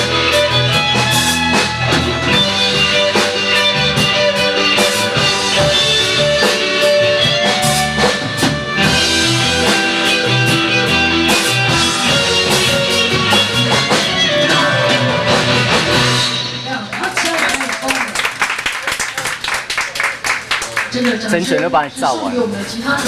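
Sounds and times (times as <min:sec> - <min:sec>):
bass guitar: 0:00.0 - 0:16.9
electric guitar: 0:00.0 - 0:16.9
drum kit steady beat: 0:00.0 - 0:17.1.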